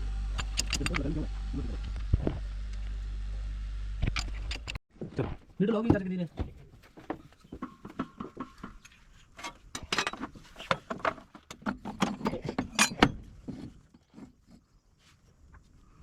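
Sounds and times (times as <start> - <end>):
metal tools clinking and knocking: 7.0 - 14.3.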